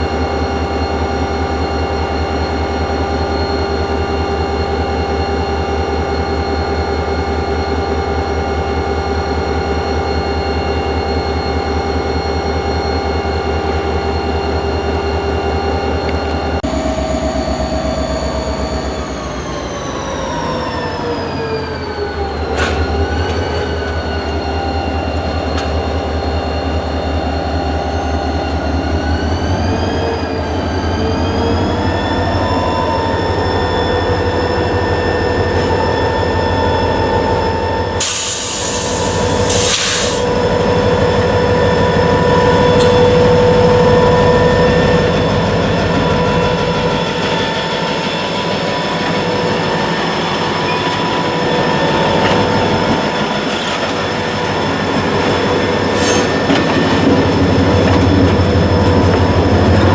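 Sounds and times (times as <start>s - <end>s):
diesel locomotive engine rumble: 0.0s - 59.9s
short bursts of air hiss: 38.0s - 40.2s
whining tones bending in pitch: 40.2s - 59.9s.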